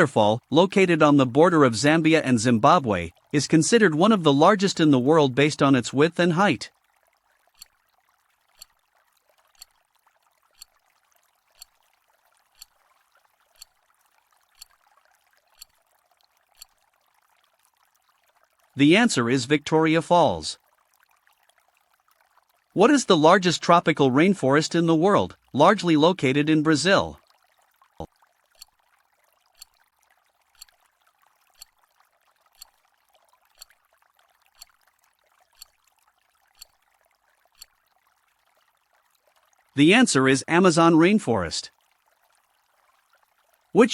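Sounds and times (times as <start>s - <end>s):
countdown timer ticking: 0.0s - 6.7s.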